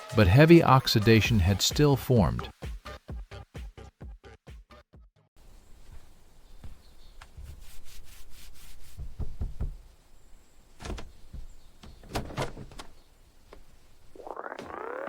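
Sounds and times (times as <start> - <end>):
rubbing and scraping car parts: 5.8 - 10.0.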